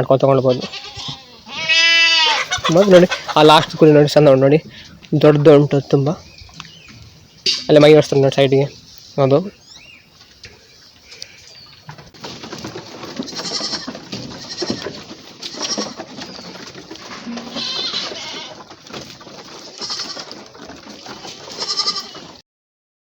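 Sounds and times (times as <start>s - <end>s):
knocks and shuffling: 0.0s - 22.4s
goats bleating: 0.5s - 3.9s, 13.2s - 16.0s, 17.0s - 18.6s, 19.6s - 20.4s, 21.1s - 22.4s.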